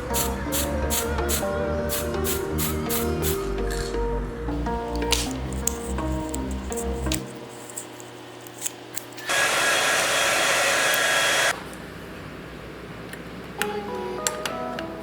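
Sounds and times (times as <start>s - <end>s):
background music: 0.0s - 7.8s, 13.5s - 15.0s
small electric motor tool whirring: 9.2s - 11.5s.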